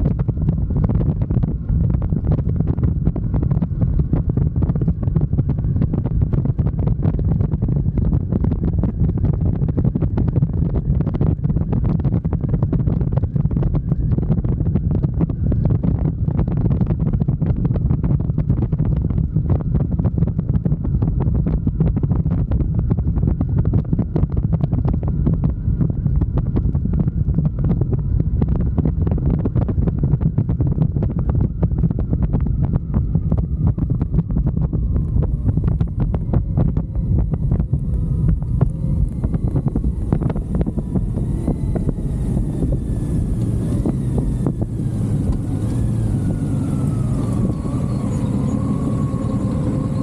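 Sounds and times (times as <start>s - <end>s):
motorcycle engine running: 0.0s - 50.0s
wind buffeting microphone: 0.0s - 50.0s.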